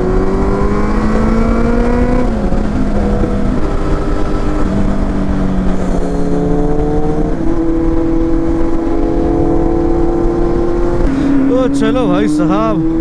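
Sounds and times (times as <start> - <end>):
motorcycle engine revving: 0.0 - 13.0
wind rumble on microphone: 0.0 - 13.0.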